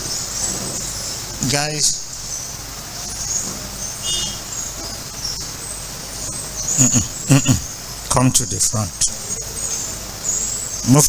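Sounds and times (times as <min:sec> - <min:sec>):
high-pitched insect chirping: 0:00.0 - 0:11.0
man's voice: 0:06.8 - 0:09.2.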